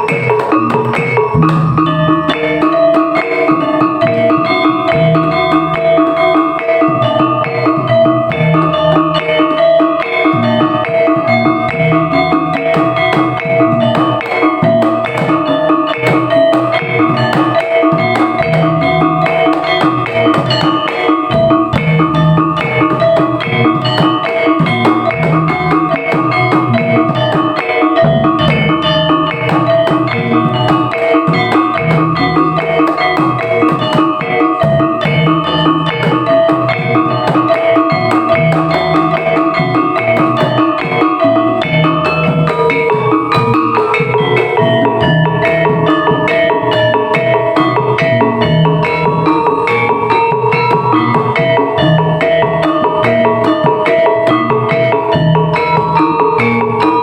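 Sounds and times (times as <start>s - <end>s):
drums playing: 0.0s - 57.0s
ringing gong tones: 0.0s - 57.0s.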